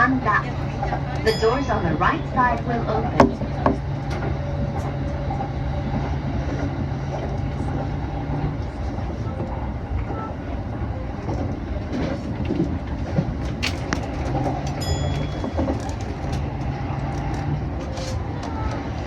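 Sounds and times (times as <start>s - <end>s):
train motor hum: 0.0s - 19.0s
train wheels rumbling on rails: 0.0s - 19.0s
brief high tone: 1.3s - 3.2s.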